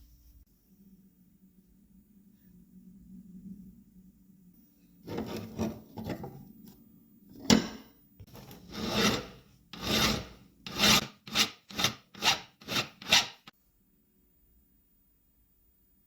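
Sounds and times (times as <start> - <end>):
hand file rasping: 8.3 - 13.5.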